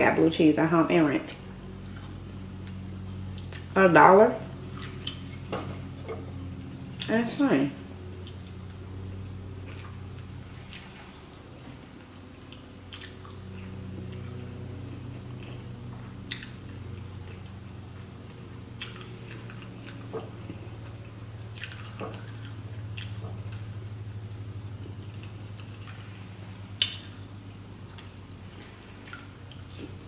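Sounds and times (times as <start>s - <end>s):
low hum: 0.0s - 30.0s
chewing and wet mouth smacks: 1.9s - 3.7s, 4.7s - 5.4s, 12.4s - 14.4s, 15.3s - 17.4s, 18.8s - 23.7s, 26.8s - 28.2s, 29.0s - 30.0s.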